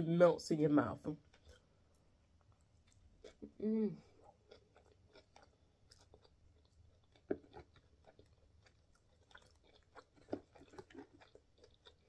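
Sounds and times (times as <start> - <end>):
close-miked chewing: 1.2 - 12.0.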